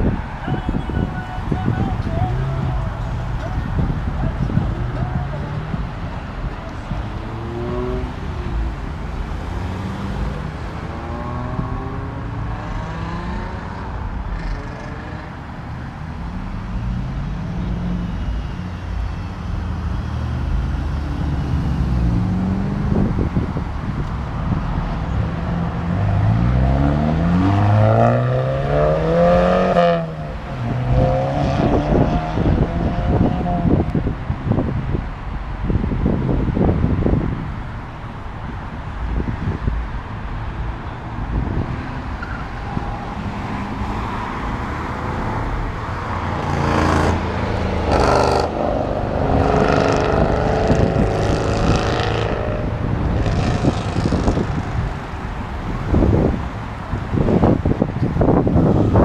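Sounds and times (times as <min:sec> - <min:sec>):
car engines accelerating hard: 0:01.0 - 0:18.8, 0:19.4 - 0:59.0.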